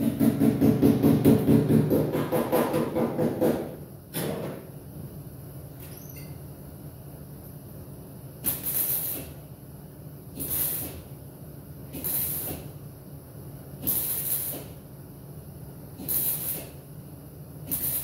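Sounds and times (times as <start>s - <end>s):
welder hissing bursts: 8.4s - 9.4s, 10.4s - 11.1s, 11.9s - 12.7s, 13.8s - 14.8s, 16.0s - 16.8s, 17.7s - 18.0s.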